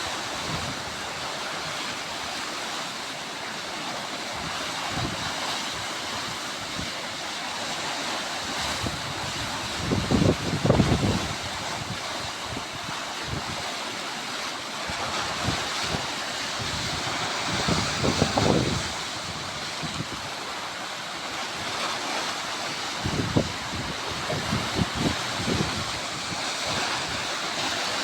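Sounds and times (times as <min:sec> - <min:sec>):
sea waves washing on shore: 0:00.0 - 0:28.0
wind buffeting microphone: 0:08.5 - 0:13.6, 0:14.9 - 0:20.4, 0:22.6 - 0:28.0.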